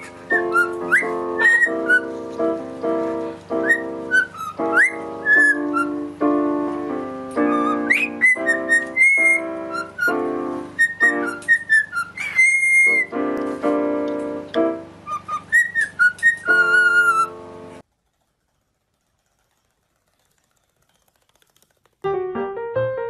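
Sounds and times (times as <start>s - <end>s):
cockatiel whistling: 0.0s - 2.1s, 3.5s - 6.1s, 7.4s - 13.2s, 15.0s - 17.4s
electronic keyboard chords: 12.9s - 15.3s, 22.0s - 23.0s.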